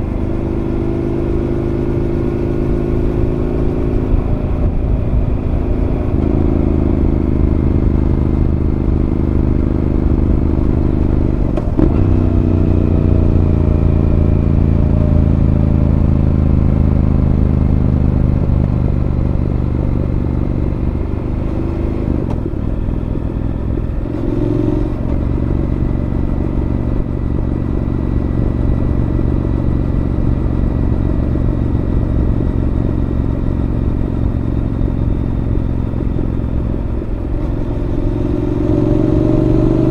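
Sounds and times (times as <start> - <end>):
motorcycle engine while riding: 0.0 - 39.9.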